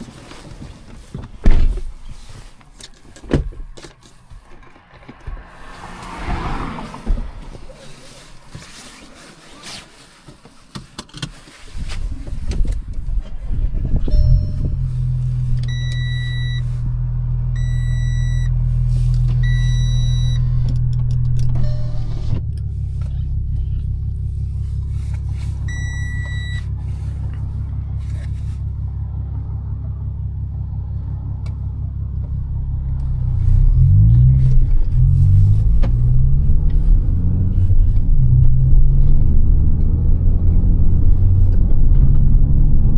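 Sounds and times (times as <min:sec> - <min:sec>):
diesel car engine idling: 0:00.0 - 0:09.5, 0:12.0 - 0:42.9
dashboard chime beeping: 0:14.1 - 0:14.8, 0:15.6 - 0:16.6, 0:17.6 - 0:18.5, 0:19.4 - 0:20.4, 0:21.6 - 0:22.3, 0:25.6 - 0:26.6.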